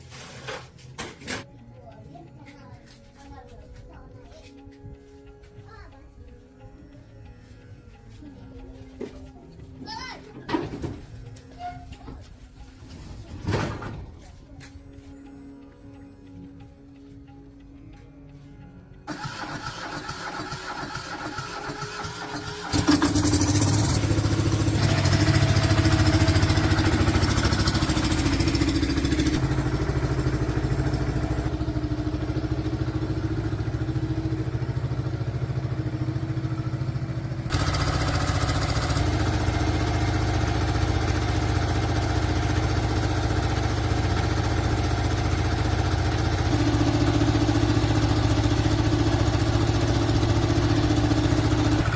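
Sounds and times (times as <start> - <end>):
tractor engine starting and running: 19.0 - 51.9.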